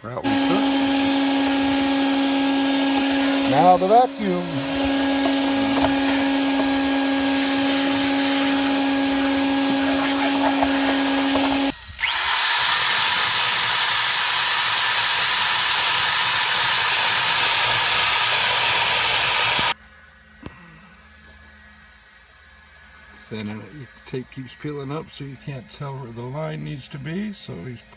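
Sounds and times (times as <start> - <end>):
motor whining with loud hiss: 0.0 - 19.8
vacuum cleaner humming: 0.0 - 19.8.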